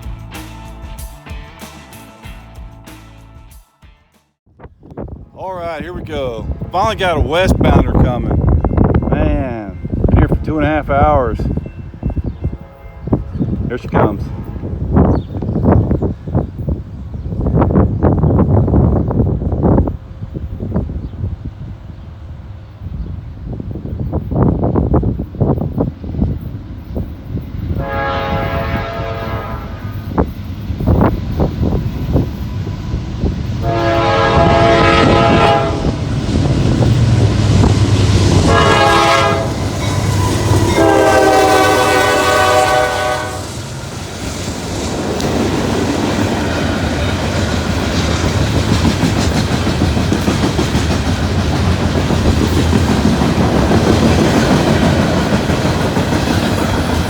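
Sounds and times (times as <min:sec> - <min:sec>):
train cars rumbling and clattering: 0:04.6 - 0:57.0
locomotive horn blasts: 0:12.5 - 0:13.5, 0:27.8 - 0:30.1, 0:33.6 - 0:36.1, 0:38.3 - 0:43.6.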